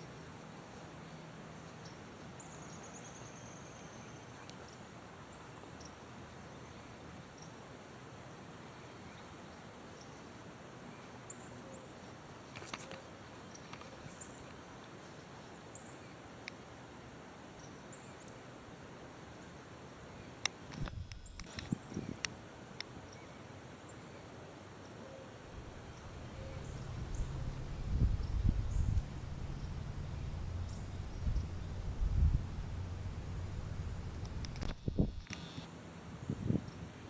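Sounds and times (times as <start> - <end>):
background hiss: 0.0 - 37.0
light clicks: 33.7 - 35.6.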